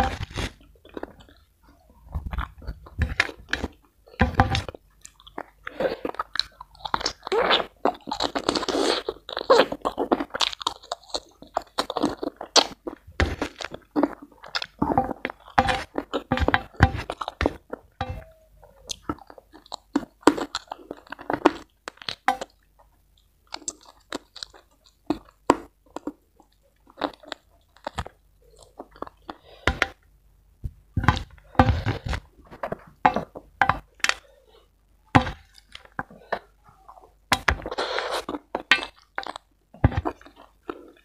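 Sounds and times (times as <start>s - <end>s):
chewing and crunching: 0.0s - 29.6s, 31.1s - 41.0s.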